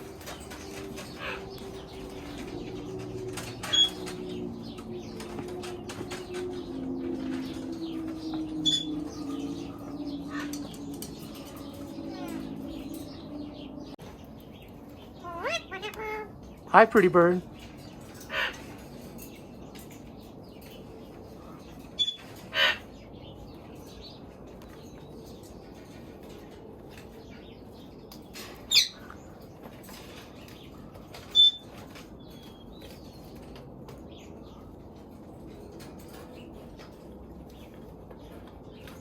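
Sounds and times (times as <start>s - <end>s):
parrot squawking: 15.2s - 17.0s.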